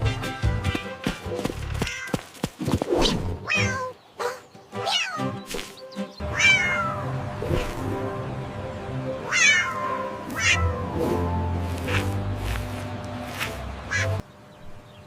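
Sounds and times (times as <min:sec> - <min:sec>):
background music: 0:00.0 - 0:01.8, 0:03.5 - 0:14.2
cat meowing: 0:03.5 - 0:03.9, 0:04.8 - 0:05.3, 0:06.3 - 0:07.1, 0:09.2 - 0:10.9, 0:13.9 - 0:14.2.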